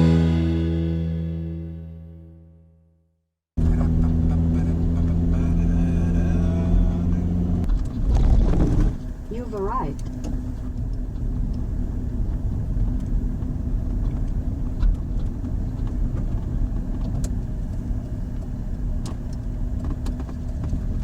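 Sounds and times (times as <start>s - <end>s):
low hum: 3.6s - 16.0s
car engine and tyres rumbling: 3.6s - 21.0s.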